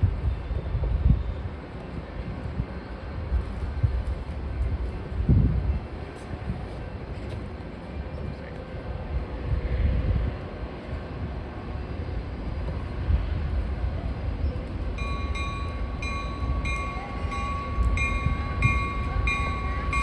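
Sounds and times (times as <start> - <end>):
train rumbling: 0.0 - 20.0
bell ringing: 15.0 - 20.0.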